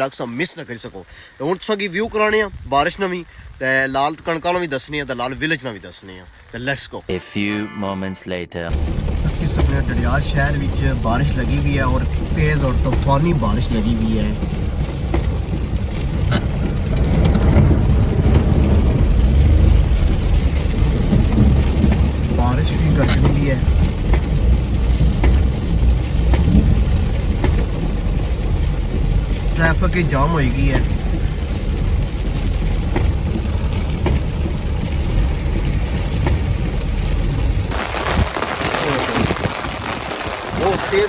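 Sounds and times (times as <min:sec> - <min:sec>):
thunder rumbling: 0:00.0 - 0:07.0, 0:08.7 - 0:41.0
heavy rain: 0:00.0 - 0:07.4, 0:08.7 - 0:41.0
vehicle engines idling: 0:08.7 - 0:17.0.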